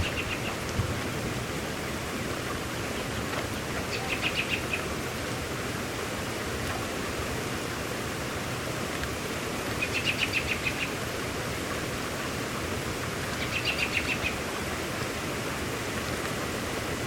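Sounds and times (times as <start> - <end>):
bird trilling: 0.0 - 0.6
rain falling: 0.0 - 17.0.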